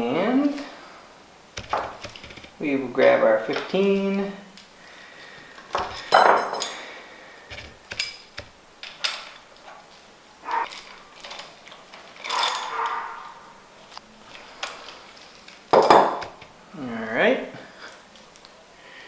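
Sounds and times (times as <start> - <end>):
short ringing metal clinks: 6.1 - 6.8.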